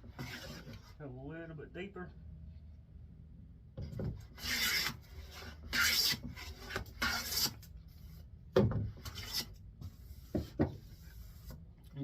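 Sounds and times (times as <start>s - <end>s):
hand plane hissing through wood: 0.2s - 0.8s.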